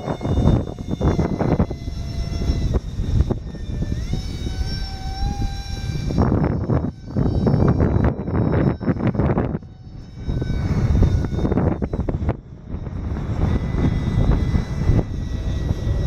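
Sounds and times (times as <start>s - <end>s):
electric ducted fan whine: 0.0s - 16.0s
wind buffeting microphone: 0.0s - 16.0s.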